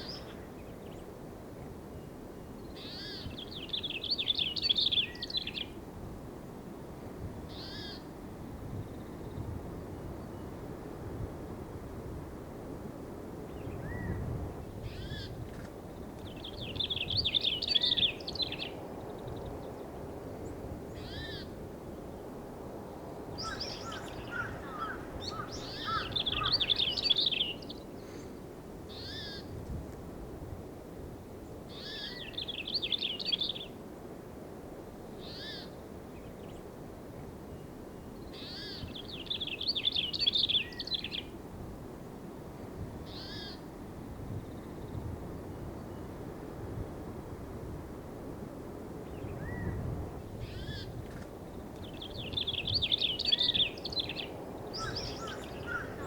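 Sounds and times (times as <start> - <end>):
bird call notes: 23.4 - 27.6, 52.9 - 56.0
birds chattering: 23.4 - 28.2, 52.4 - 56.0.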